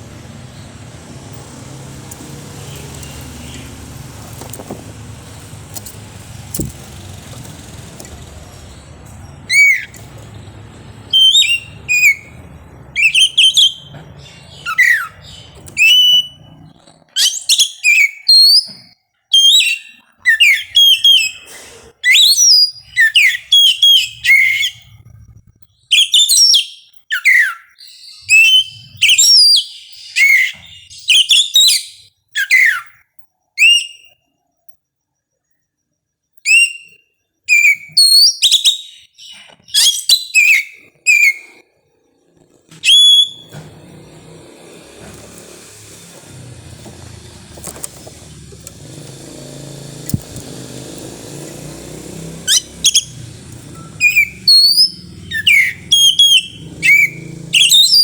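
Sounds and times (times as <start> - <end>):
magpie-robin singing: 0.0 - 25.0, 25.8 - 32.9, 36.5 - 41.6, 42.7 - 43.6, 50.2 - 58.0.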